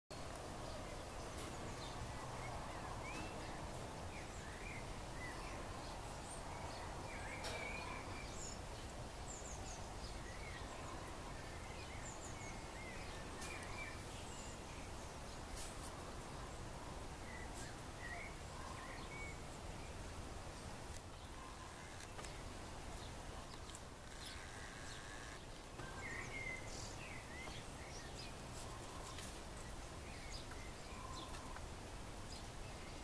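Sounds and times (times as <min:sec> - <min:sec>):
background hiss: 0:00.1 - 0:33.0
faint bird chirps: 0:06.6 - 0:08.6, 0:20.6 - 0:31.7.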